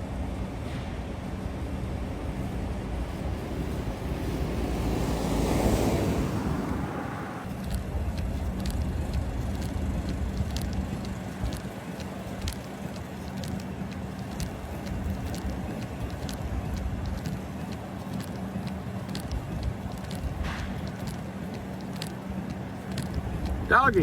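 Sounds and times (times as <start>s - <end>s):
car road and engine rumble: 0.0s - 24.0s
sharp ticks: 7.5s - 24.0s.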